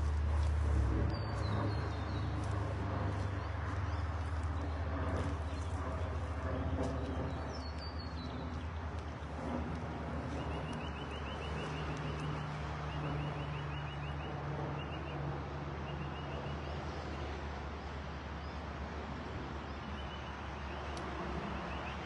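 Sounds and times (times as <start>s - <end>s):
outdoor rushing noise: 0.0s - 13.4s
low hum: 0.0s - 16.2s.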